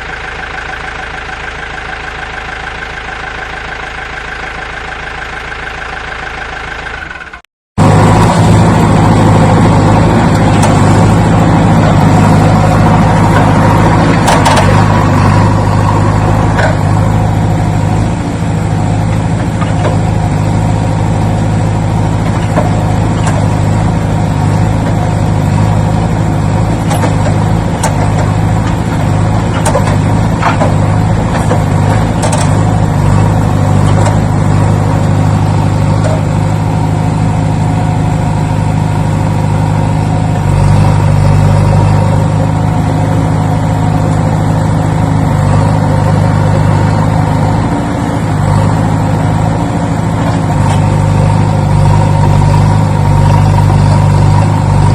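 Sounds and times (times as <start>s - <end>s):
engine idling: 0.0s - 54.9s.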